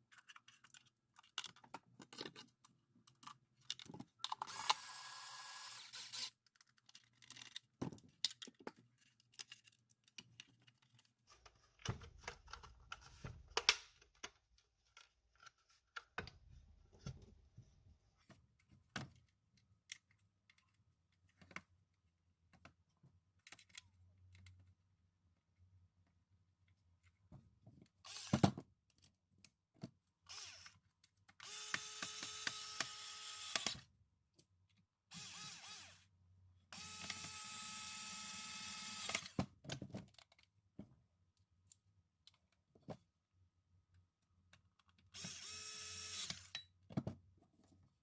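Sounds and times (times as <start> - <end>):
plastic parts clicking and knocking: 0.0 - 4.8, 6.0 - 17.4, 18.2 - 24.8, 39.0 - 43.1, 46.1 - 47.9.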